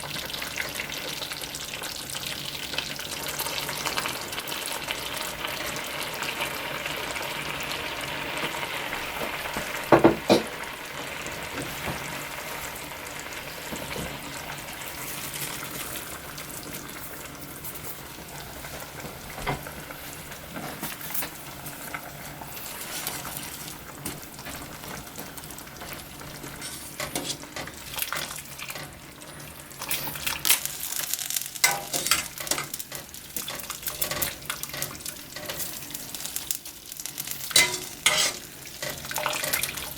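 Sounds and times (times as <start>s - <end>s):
food sizzling in a frying pan: 0.0s - 39.9s
utensil scraping a pan: 26.4s - 36.2s, 37.5s - 39.6s
utensil clatter: 37.5s - 39.4s.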